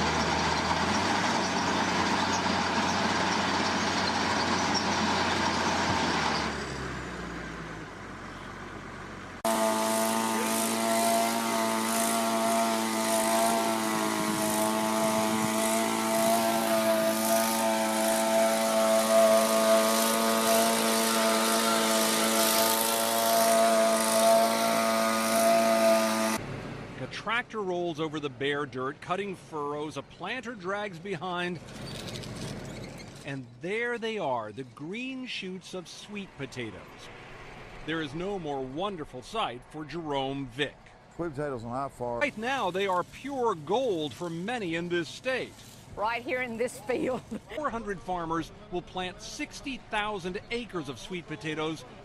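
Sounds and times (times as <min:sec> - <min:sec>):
whining engine drone: 0:00.0 - 0:26.5.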